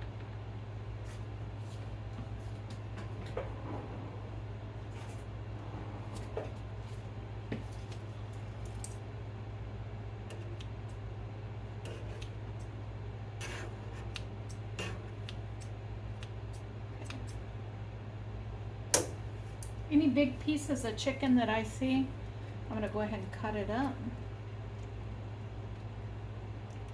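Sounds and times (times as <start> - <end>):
low hum: 0.0 - 26.9.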